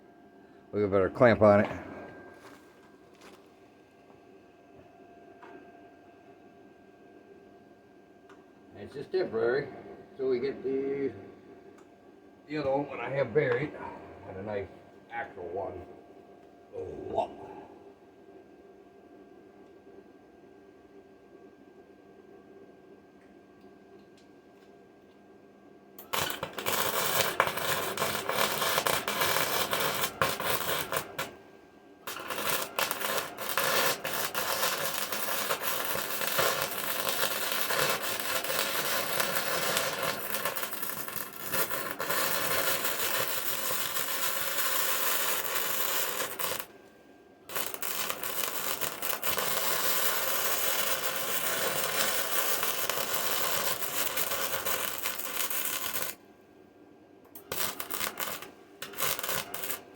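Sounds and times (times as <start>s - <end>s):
crackling welding arc: 26.0s - 31.4s, 32.0s - 46.7s, 47.5s - 56.2s, 57.3s - 59.9s.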